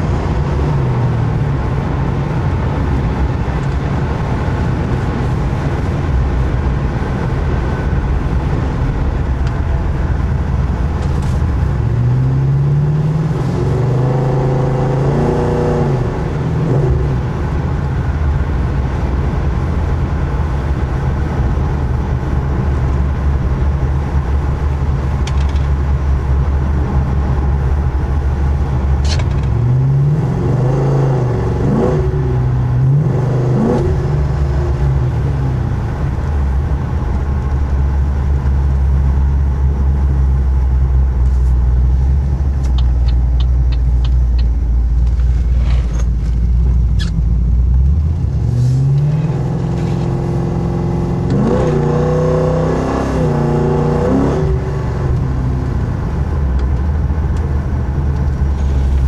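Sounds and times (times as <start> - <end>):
car engine rumbling from cabin: 0.0 - 59.0
turn signal ticking: 42.2 - 45.2.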